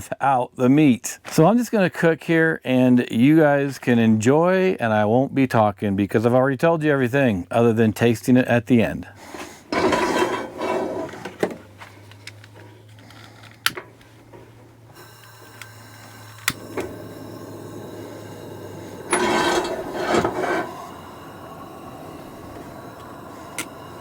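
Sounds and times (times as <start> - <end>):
scraping in a skillet: 9.2 - 11.4, 17.3 - 21.6
low steady hum: 9.2 - 24.0.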